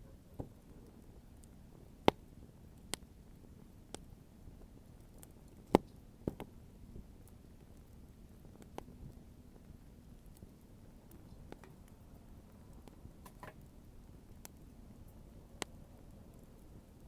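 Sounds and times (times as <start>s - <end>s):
faint low hiss: 0.0s - 17.0s
wood fire crackling: 0.0s - 17.0s.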